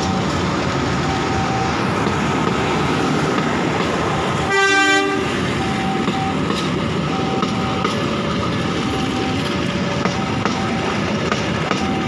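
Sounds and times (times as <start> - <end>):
train wheels rumbling: 0.0 - 12.0
short train horn toot: 4.5 - 5.4.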